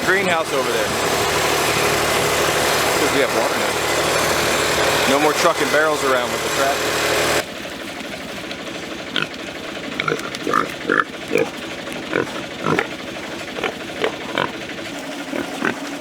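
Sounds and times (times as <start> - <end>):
steady low hum: 0.0 - 16.0
pigs grunting: 7.8 - 16.0.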